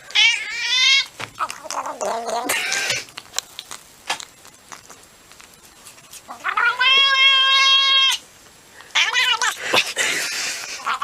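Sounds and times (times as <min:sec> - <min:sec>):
cat meowing: 0:06.3 - 0:08.2, 0:09.0 - 0:09.6.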